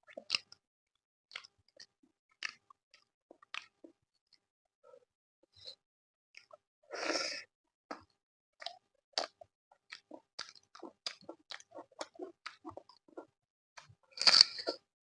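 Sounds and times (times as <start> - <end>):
person chewing food: 0.1 - 0.6, 1.3 - 4.0, 7.9 - 14.9.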